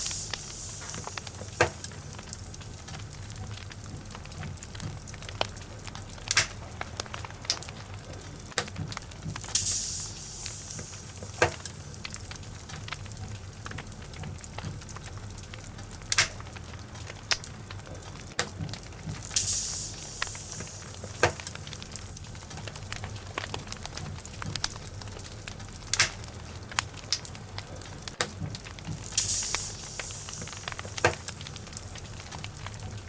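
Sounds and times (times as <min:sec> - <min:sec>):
fire crackling and popping: 0:00.0 - 0:33.0
low steady rumble: 0:00.0 - 0:33.0
brief hiss: 0:09.5 - 0:12.0, 0:19.3 - 0:21.9, 0:29.2 - 0:31.4.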